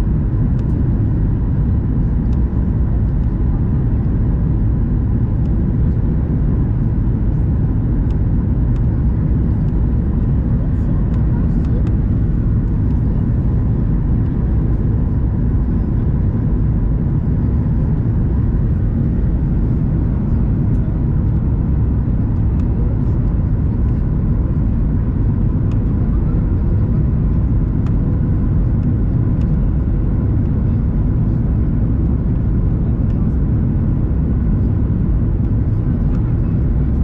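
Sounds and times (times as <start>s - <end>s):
airliner cabin engine rumble: 0.0s - 37.0s.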